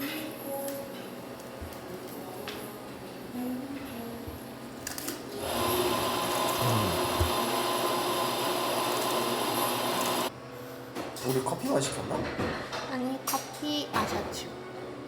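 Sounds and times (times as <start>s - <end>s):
coffee grinder running: 5.4s - 10.3s.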